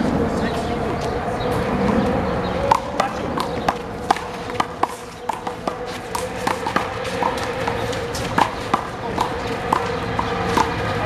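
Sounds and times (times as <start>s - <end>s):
handball slaps and bounces: 2.7s - 11.0s.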